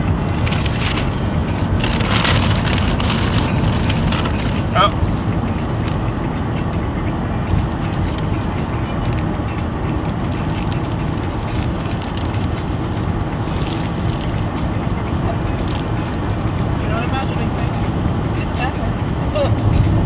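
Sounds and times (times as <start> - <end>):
brief rustles: 0.0 - 6.3, 7.5 - 14.6, 15.4 - 16.8, 17.5 - 18.7.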